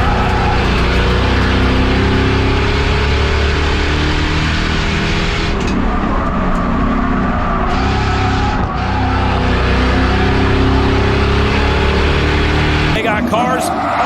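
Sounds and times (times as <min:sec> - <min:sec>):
race car engine: 0:00.0 - 0:14.0.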